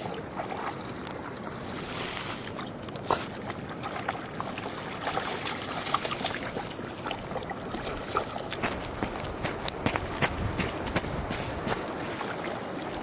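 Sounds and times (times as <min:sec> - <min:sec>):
short sharp water sounds: 0:00.0 - 0:13.0
river water rushing: 0:03.8 - 0:13.0.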